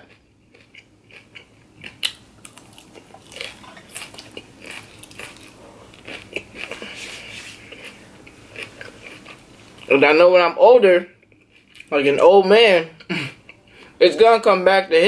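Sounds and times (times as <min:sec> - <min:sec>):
person chewing crunchy salad: 0:00.0 - 0:10.0, 0:11.2 - 0:11.9.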